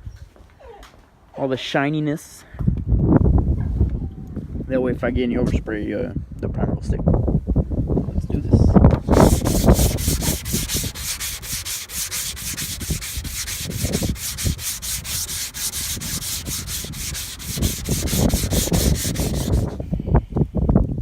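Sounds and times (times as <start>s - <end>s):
wind rumble on microphone: 2.6s - 11.6s, 12.2s - 21.0s
hand sanding car panel: 9.0s - 19.8s.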